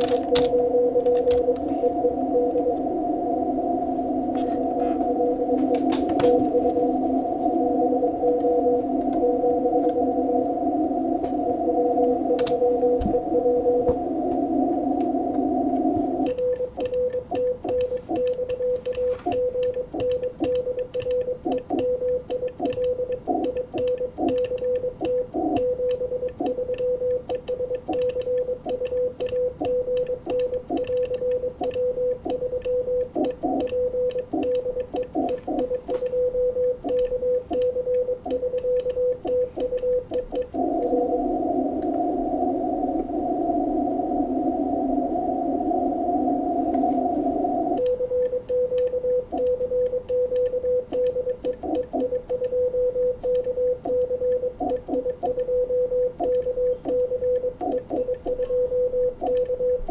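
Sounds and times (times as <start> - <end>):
radio hiss: 0.0 - 16.4, 40.4 - 49.8
morse code tone: 0.0 - 59.9.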